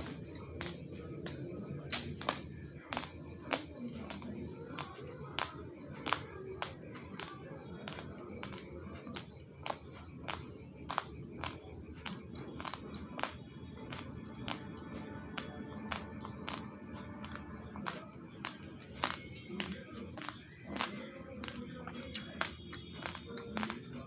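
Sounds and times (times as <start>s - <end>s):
crunchy chewing of raw rice: 0.0s - 24.0s.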